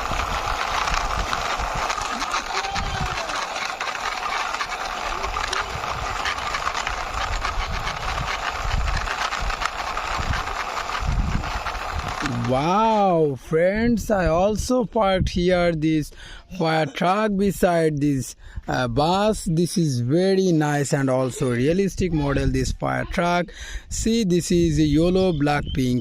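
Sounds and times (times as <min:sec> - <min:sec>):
plastic toy wheels rolling and rattling: 0:00.0 - 0:13.2, 0:24.0 - 0:26.0.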